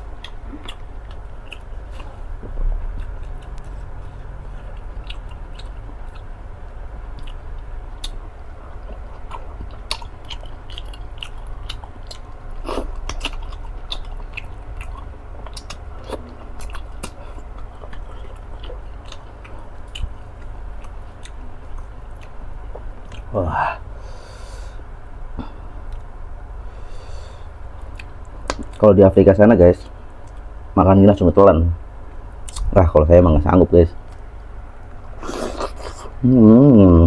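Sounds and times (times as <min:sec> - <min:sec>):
steady low hum: 0:00.0 - 0:37.0
wet chewing and lip smacks: 0:00.2 - 0:02.1, 0:02.9 - 0:06.3, 0:07.1 - 0:23.3, 0:27.8 - 0:28.8, 0:32.4 - 0:32.7.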